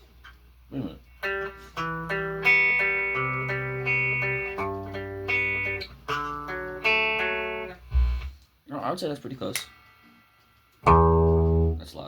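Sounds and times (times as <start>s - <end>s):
electric guitar chords ringing: 1.2s - 8.3s, 10.8s - 12.0s.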